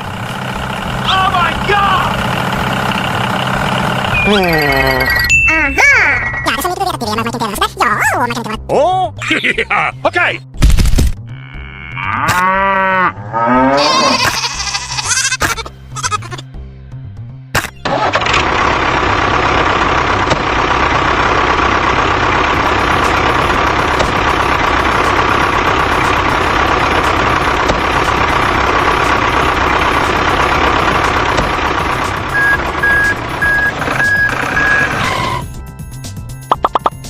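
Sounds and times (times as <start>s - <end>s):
truck engine rumbling: 0.0s - 10.6s, 11.2s - 37.0s
reversing alarm beeping: 4.1s - 5.6s, 32.3s - 35.4s.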